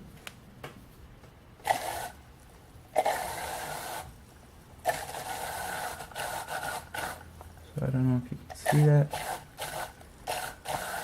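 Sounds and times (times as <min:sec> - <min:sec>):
electric motor pump whirring: 0:01.6 - 0:02.2, 0:03.0 - 0:04.1, 0:04.8 - 0:07.3, 0:08.5 - 0:11.0.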